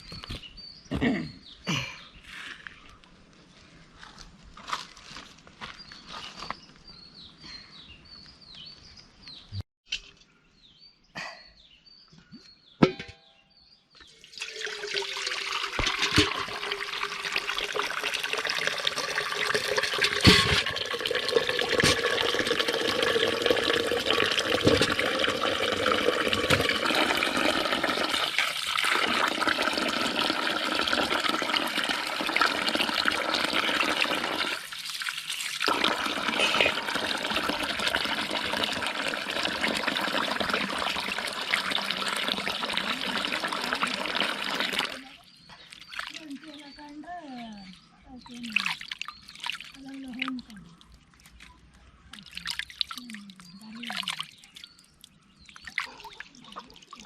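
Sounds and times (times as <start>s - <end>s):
water gushing: 14.2s - 45.2s, 52.2s - 54.8s.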